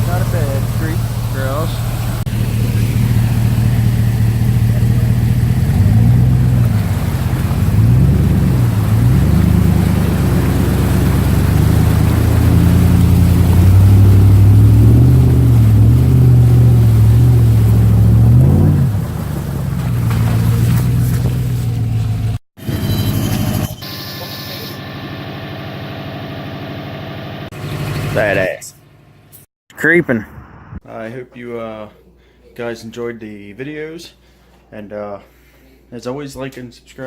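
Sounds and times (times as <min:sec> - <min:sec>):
truck engine revving: 0:00.0 - 0:22.4.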